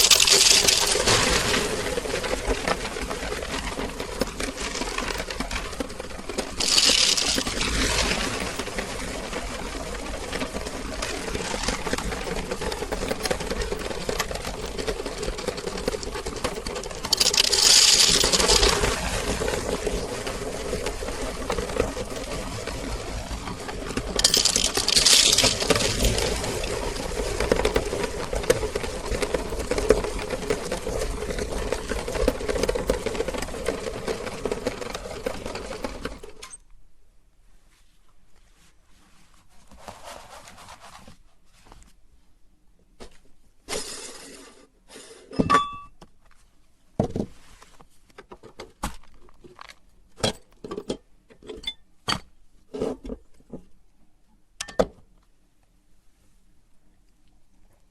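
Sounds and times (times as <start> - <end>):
clinks and knocks: 0.0 - 1.5, 2.5 - 8.8, 10.0 - 19.2, 23.9 - 36.6
meat grinder grinding candies: 0.0 - 36.2.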